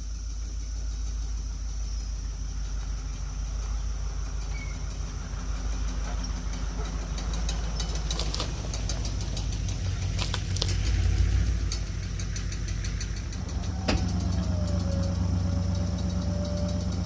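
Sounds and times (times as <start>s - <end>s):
vehicle engine running: 0.0s - 17.0s
metal clanks and rattles: 2.7s - 17.0s.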